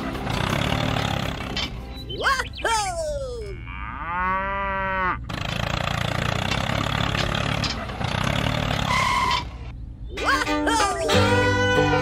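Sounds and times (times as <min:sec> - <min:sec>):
person exclaiming: 0:02.2 - 0:03.6, 0:10.2 - 0:12.0
small engine running roughly: 0:05.3 - 0:08.9.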